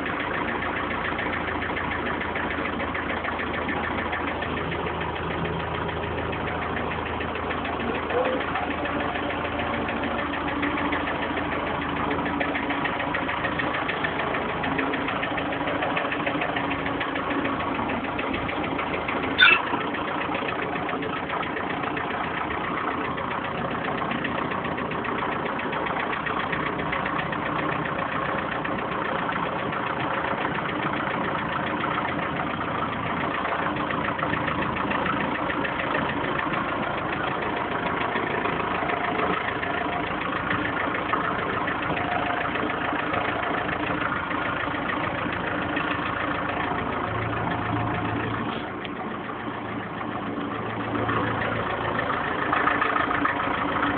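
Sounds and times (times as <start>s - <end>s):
tractor diesel engine idling: 0.0s - 53.9s
sharp high squeak: 19.4s - 19.8s.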